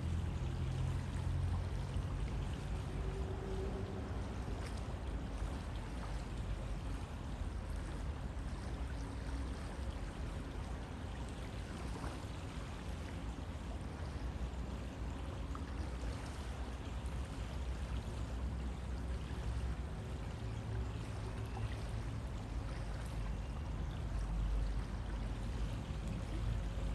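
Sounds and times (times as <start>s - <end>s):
river water rushing: 0.0s - 26.9s.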